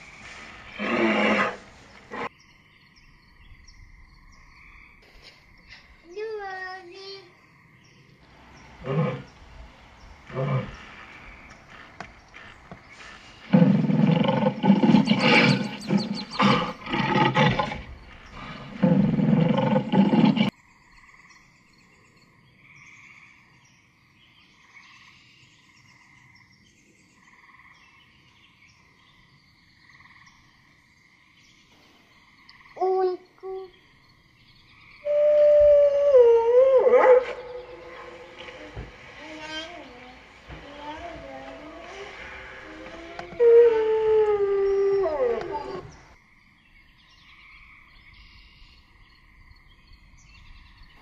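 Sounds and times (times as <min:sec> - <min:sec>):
lion roaring: 0:00.7 - 0:02.3, 0:08.4 - 0:20.5, 0:35.9 - 0:46.2.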